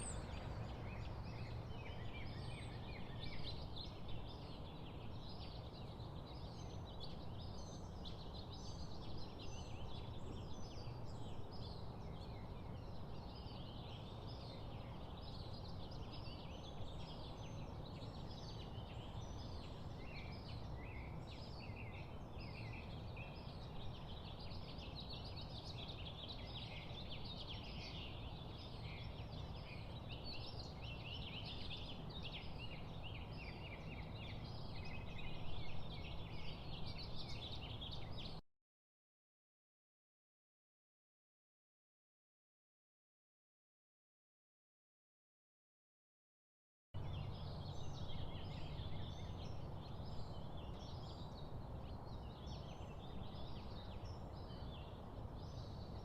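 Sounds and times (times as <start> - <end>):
birds chirping and calling: 0.0 - 4.8.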